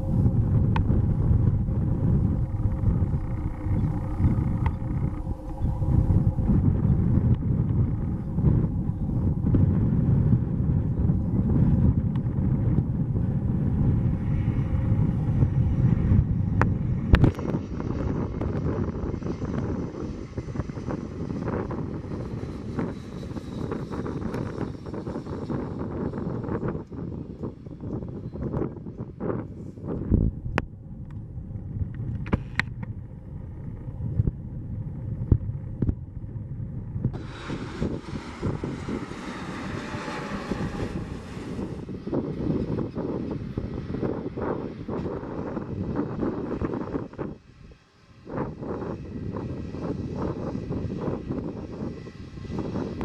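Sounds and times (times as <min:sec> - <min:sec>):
aircraft engines rumbling: 0:00.0 - 0:53.0
wind buffeting microphone: 0:00.0 - 0:53.0.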